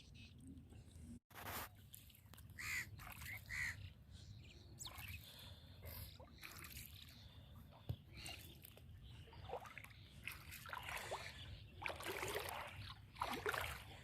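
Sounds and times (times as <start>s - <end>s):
bird calling: 2.6s - 5.5s.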